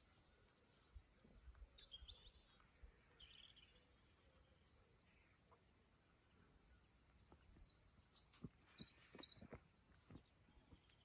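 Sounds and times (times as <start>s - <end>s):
faint high bird-like chirps: 0.8s - 5.4s, 6.7s - 9.6s.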